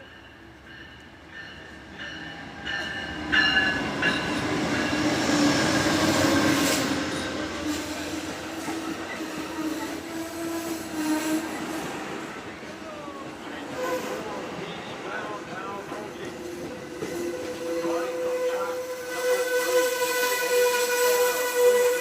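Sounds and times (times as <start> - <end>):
train running past: 0.0 - 22.0.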